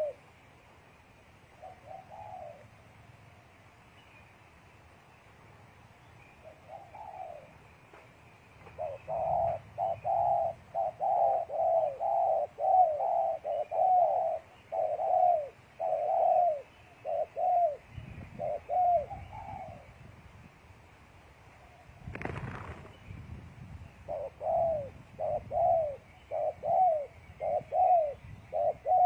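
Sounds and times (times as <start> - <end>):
doves cooing: 0.0 - 0.2, 1.6 - 2.8, 6.5 - 7.6, 8.7 - 19.8, 24.1 - 29.0.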